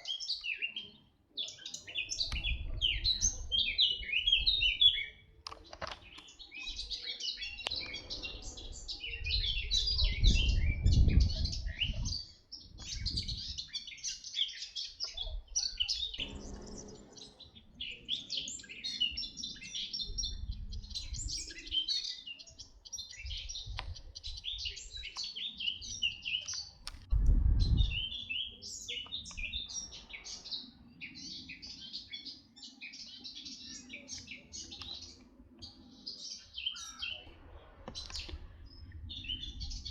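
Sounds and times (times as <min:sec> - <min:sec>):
small birds chirping: 0:00.0 - 0:39.9
low rumble: 0:16.2 - 0:17.9.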